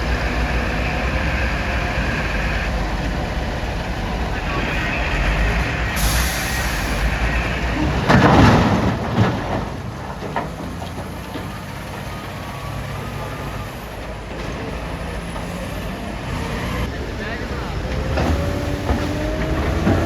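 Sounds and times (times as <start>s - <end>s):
heavy diesel machinery running: 0.0s - 20.0s
rocks crashing into truck bed: 7.8s - 11.7s.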